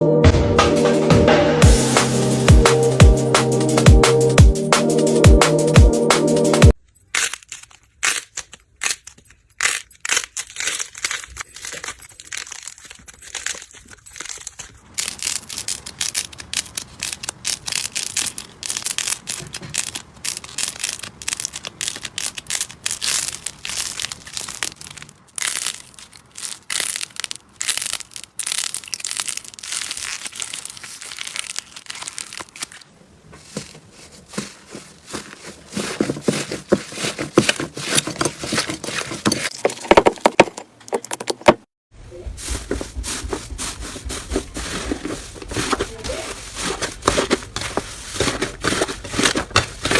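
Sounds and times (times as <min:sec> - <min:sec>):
slime squeezed with sticky pops: 0:13.3 - 0:32.8.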